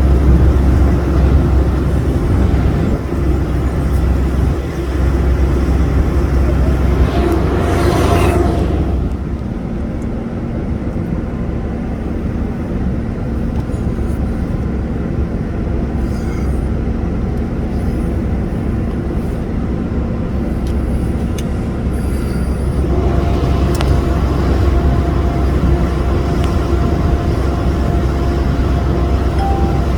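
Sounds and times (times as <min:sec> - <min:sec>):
boat engine running: 0:00.0 - 0:10.3, 0:15.1 - 0:29.9.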